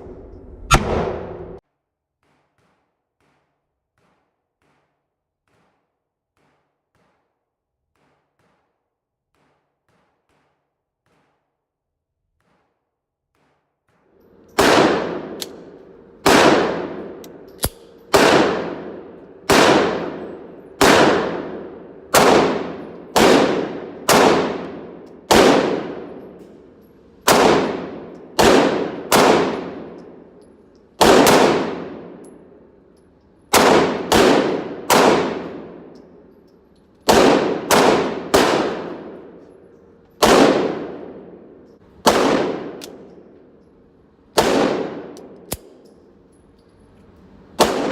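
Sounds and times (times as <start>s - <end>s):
pistol shots ringing: 14.2s - 43.7s, 44.3s - 46.2s, 47.6s - 47.9s.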